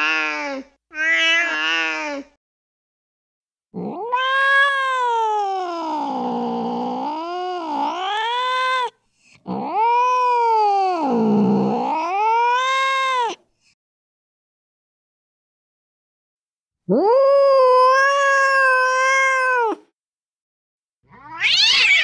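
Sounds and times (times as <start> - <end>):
angry cat yowling: 0.0 - 2.3, 3.8 - 13.4, 16.9 - 19.9, 21.1 - 22.0.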